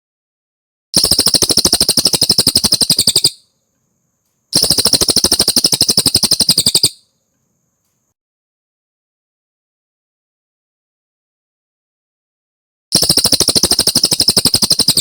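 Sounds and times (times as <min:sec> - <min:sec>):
songbird trilling: 0:01.0 - 0:03.4, 0:04.6 - 0:07.0, 0:13.0 - 0:15.0.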